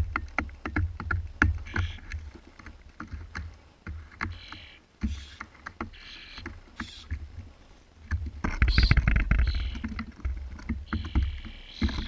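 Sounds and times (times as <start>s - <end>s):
bird feet and bills tapping: 0.0s - 12.0s
fledgling begging rasps: 1.4s - 2.4s, 4.0s - 7.4s, 8.5s - 12.0s.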